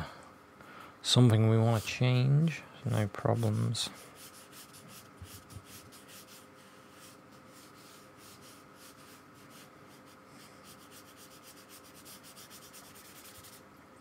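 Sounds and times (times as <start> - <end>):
paintbrush strokes on paper: 2.9 - 13.6.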